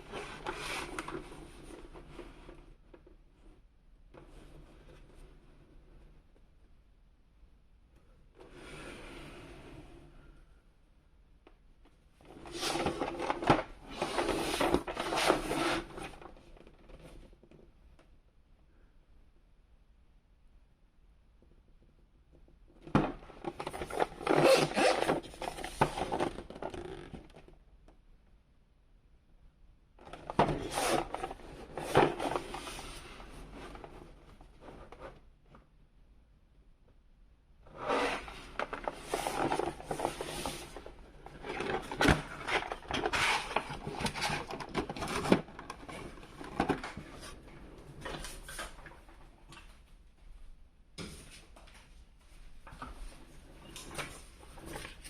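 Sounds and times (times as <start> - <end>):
toy packaging rustling and scraping: 12.3 - 16.3, 23.4 - 27.2, 30.1 - 35.0, 37.7 - 49.2.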